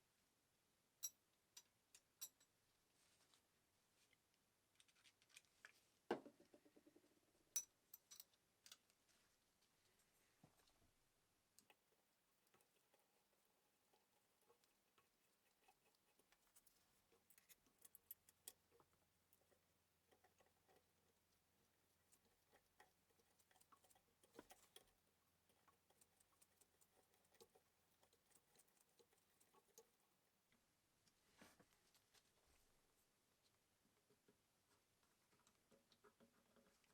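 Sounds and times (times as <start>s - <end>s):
faint small clicks and taps: 7.6s - 9.7s, 11.5s - 32.3s, 33.4s - 36.9s.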